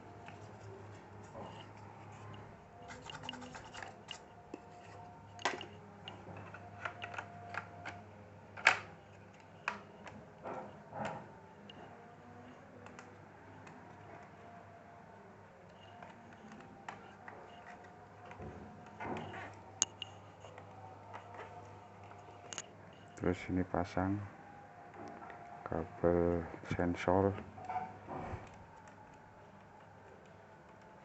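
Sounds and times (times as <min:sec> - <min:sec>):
small clicks of laptop parts: 0:03.0 - 0:08.0.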